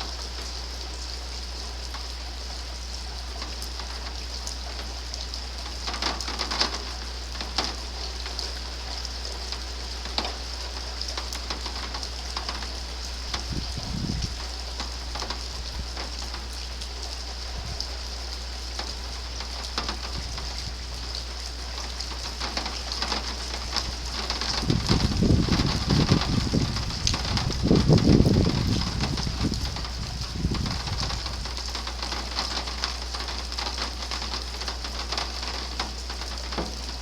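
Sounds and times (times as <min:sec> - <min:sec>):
rain drops ticking and hissing: 0:00.0 - 0:37.0
low thunder rumble: 0:13.3 - 0:14.4, 0:23.6 - 0:31.6.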